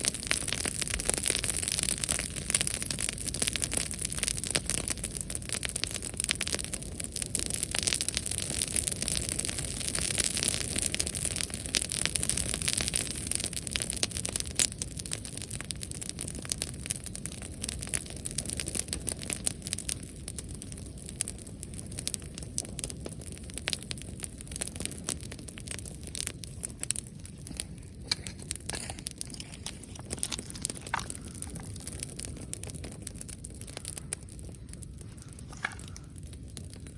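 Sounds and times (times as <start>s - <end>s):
bonfire crackling and popping: 0.0s - 36.9s
fire hissing: 0.0s - 36.9s
dry vegetation crackling: 26.9s - 36.4s.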